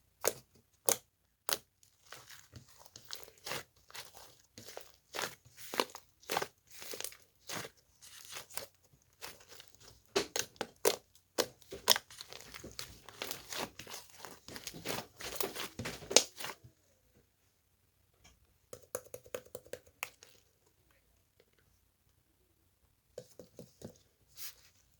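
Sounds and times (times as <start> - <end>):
crinkling and crackling: 1.8 - 16.8.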